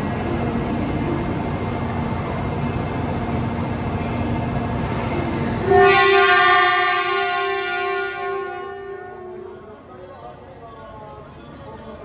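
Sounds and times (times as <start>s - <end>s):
train rolling with low rumble: 0.0s - 12.0s
train horn: 5.6s - 9.9s.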